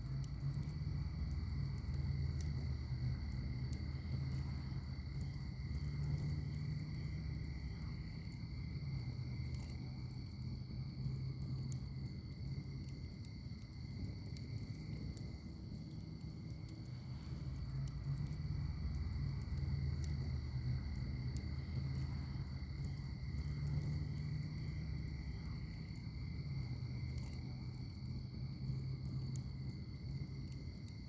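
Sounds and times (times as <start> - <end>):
insect trill: 0.0 - 31.0
wood fire crackling: 0.0 - 31.0.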